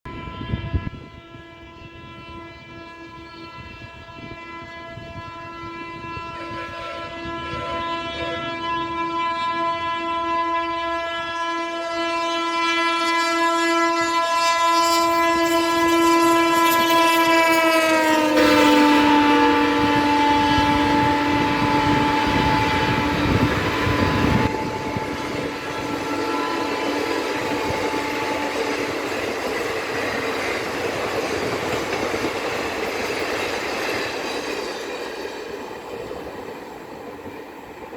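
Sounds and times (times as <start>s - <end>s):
locomotive horn blast: 0.0s - 32.6s
train rumble and wheel clatter: 0.0s - 37.9s.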